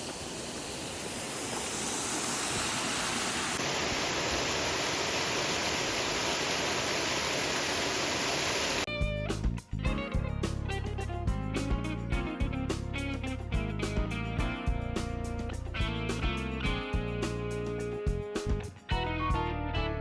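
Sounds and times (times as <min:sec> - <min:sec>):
rushing water: 0:00.0 - 0:08.9
plucked guitar music: 0:08.9 - 0:20.0.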